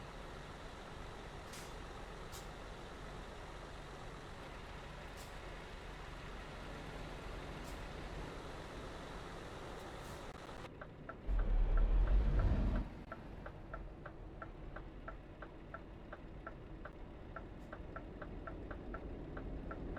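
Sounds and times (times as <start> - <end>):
loud low rumble: 11.3 - 13.1.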